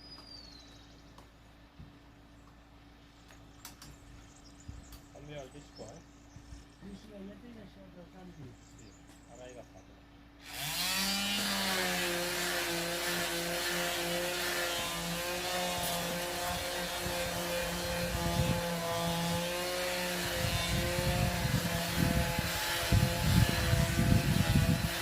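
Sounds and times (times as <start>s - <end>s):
sanding disc scraping wood: 10.5s - 25.0s.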